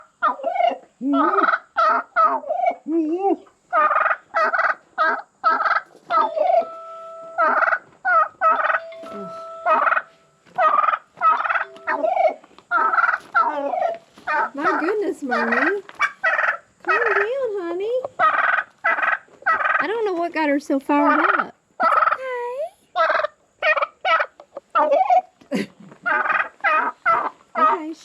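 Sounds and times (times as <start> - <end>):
turkey hen calling rapidly: 0.0 - 2.8, 3.7 - 6.8, 7.4 - 17.4, 18.0 - 19.8, 21.1 - 22.2, 23.0 - 25.3, 26.0 - 27.9.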